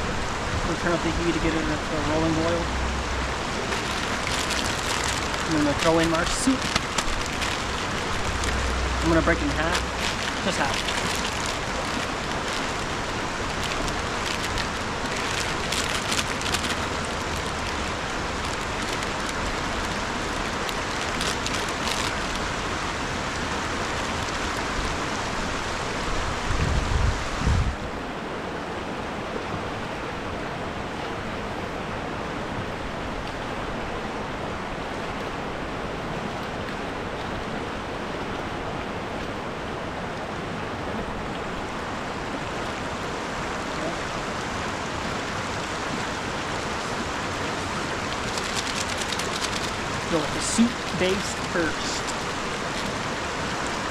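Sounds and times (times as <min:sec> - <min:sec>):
river water rushing: 0:00.0 - 0:53.9
small cracks and crinkles: 0:03.7 - 0:22.5, 0:48.1 - 0:51.3.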